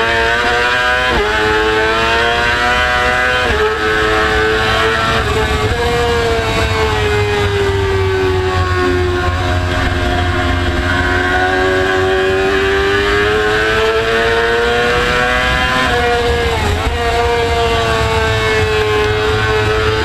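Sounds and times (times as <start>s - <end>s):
motorcycle engine at high revs: 0.0s - 20.0s
low rumble: 5.1s - 13.0s.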